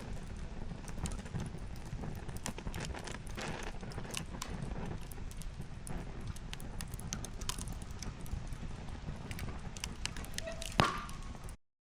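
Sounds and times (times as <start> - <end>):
wood fire crackling: 0.0 - 11.6.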